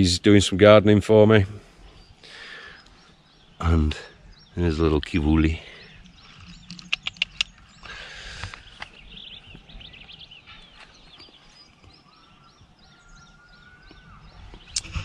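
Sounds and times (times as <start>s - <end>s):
faint outdoor background noise: 0.0s - 15.0s
birds chirping and whistling: 1.4s - 15.0s
sharp clicks: 6.3s - 8.9s.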